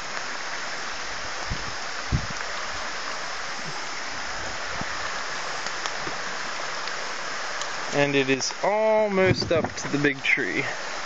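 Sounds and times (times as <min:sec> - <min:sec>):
creek rushing: 0:00.0 - 0:11.0
low bump: 0:09.2 - 0:10.0.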